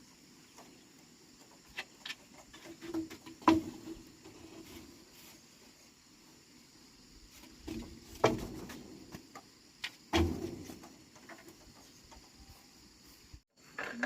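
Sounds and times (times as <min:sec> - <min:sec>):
knocks: 0:02.8 - 0:04.0, 0:07.6 - 0:09.4.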